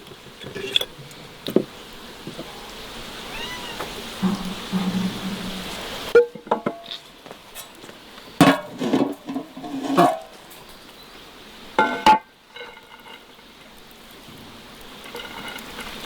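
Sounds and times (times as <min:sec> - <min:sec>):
kitchenware knocking and clattering: 0:00.1 - 0:02.6, 0:04.2 - 0:06.9, 0:08.4 - 0:10.3, 0:11.8 - 0:13.2.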